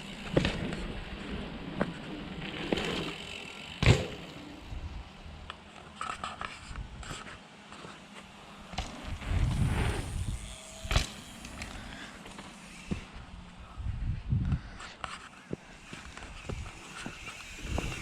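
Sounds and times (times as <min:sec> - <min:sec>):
bike knocks and rattles: 0:00.0 - 0:04.6, 0:08.6 - 0:09.7, 0:10.8 - 0:13.2
bike tyres on dirt: 0:00.0 - 0:18.0.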